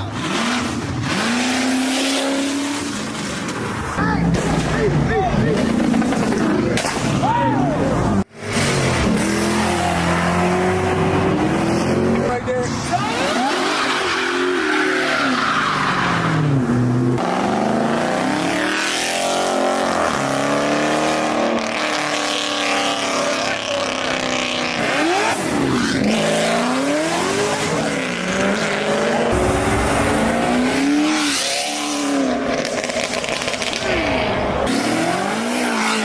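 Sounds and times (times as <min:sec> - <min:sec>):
car engine revving: 0:00.0 - 0:36.0
rushing noise: 0:26.4 - 0:35.3.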